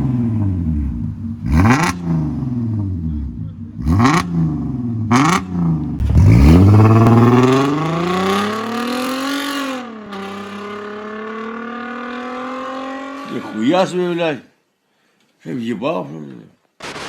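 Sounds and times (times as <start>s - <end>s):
car engine throttle blips: 0.0s - 13.1s
car engine accelerating hard: 0.0s - 13.6s.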